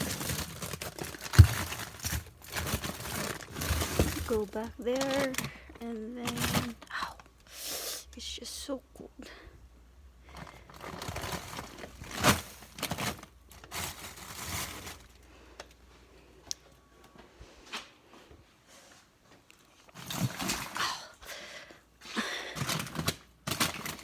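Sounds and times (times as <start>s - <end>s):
plastic bags crinkling: 0.0s - 7.3s, 10.2s - 15.7s, 19.9s - 21.1s, 22.2s - 24.0s.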